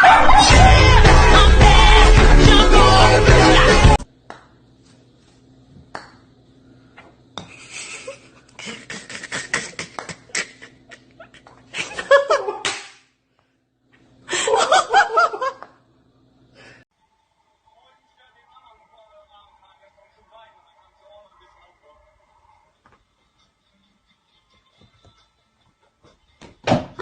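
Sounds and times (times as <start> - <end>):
person laughing: 0.0 - 0.9, 7.5 - 12.7
faint steady hum: 4.0 - 26.6.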